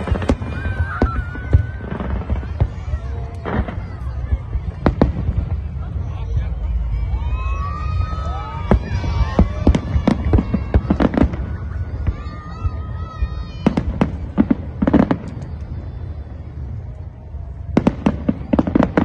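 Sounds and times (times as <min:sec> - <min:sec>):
low rumble: 0:00.0 - 0:13.4
fireworks cracking: 0:00.0 - 0:17.0, 0:17.6 - 0:19.0.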